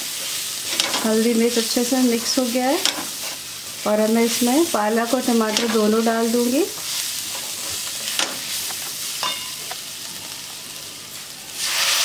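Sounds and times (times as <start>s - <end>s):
onions sizzling in oil: 0.0s - 12.0s
tomatoes sizzling in hot oil: 0.0s - 12.0s
utensils knocking against pan: 0.7s - 1.2s, 2.2s - 3.2s, 5.4s - 6.0s, 7.3s - 9.8s.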